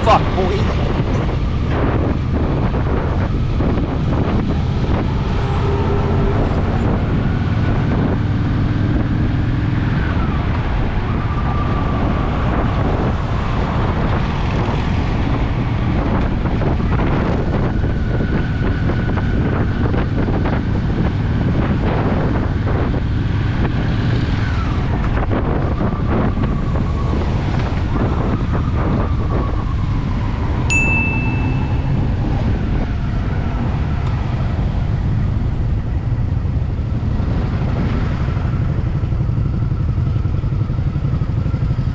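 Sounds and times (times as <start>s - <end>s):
wind buffeting microphone: 0.0s - 41.9s
motorcycle engine running: 38.6s - 41.9s.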